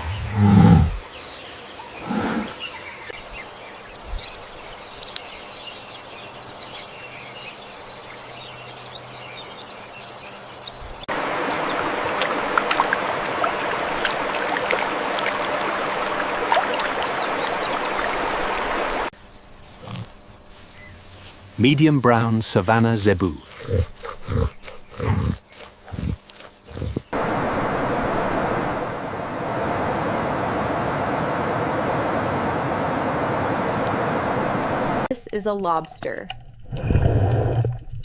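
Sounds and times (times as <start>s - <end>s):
high chirping calls: 9.4s - 11.0s
steady rushing noise: 27.2s - 35.1s.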